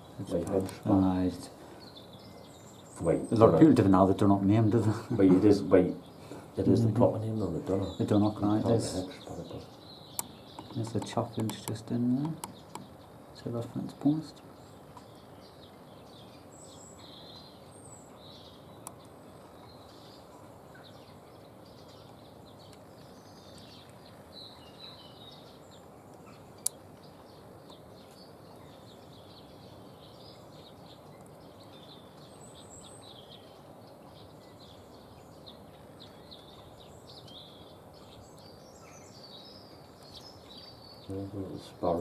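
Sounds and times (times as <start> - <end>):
background hiss: 0.0 - 42.0
songbirds chirping: 0.0 - 42.0
sharp clicks: 10.1 - 12.9.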